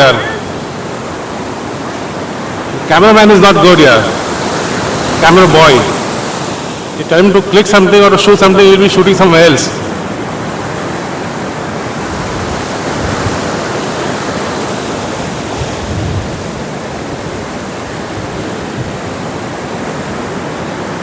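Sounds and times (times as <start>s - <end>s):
waves washing onto beach: 0.0s - 21.0s.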